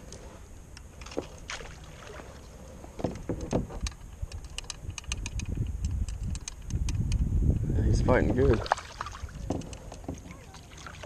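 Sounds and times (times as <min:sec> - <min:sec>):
wind rumble on microphone: 0:02.4 - 0:10.5.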